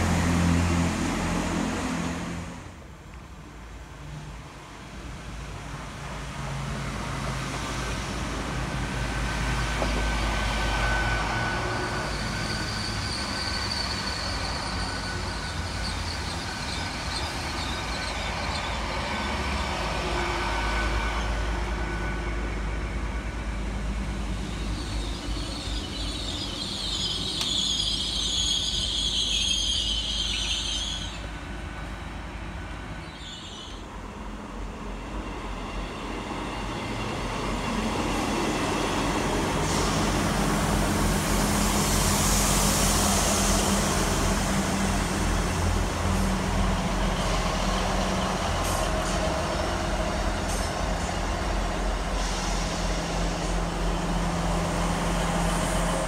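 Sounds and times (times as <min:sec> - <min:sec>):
train rumbling: 0:00.0 - 0:56.0
high-pitched train squeal: 0:09.2 - 0:31.6, 0:32.8 - 0:34.0, 0:36.4 - 0:56.0.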